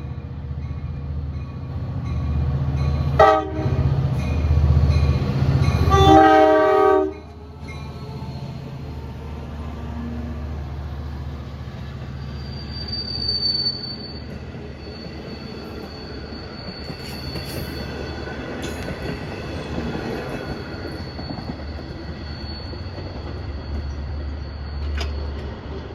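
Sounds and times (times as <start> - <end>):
train rumbling: 0.0 - 25.9
rail clicks: 0.2 - 25.9
high-pitched wheel squeal: 5.0 - 25.8.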